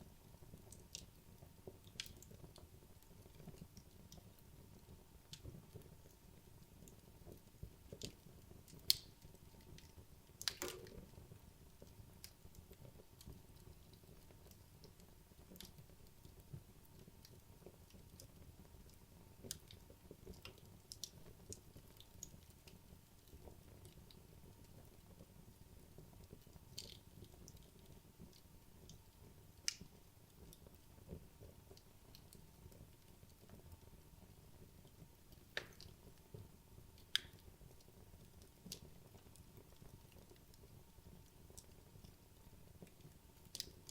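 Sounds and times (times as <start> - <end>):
wood crackling: 7.9 - 11.3, 26.8 - 43.9.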